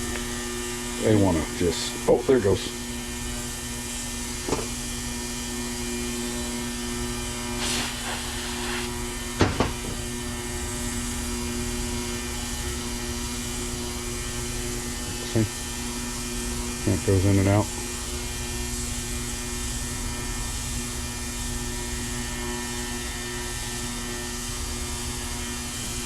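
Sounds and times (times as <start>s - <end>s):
electric hum: 0.0s - 26.0s
short hiss: 7.6s - 8.9s.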